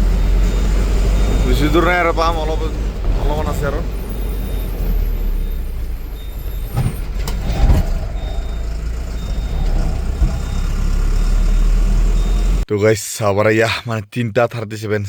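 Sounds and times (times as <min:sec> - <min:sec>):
truck engine rumbling: 0:00.0 - 0:12.7
short high beeps: 0:05.3 - 0:12.6.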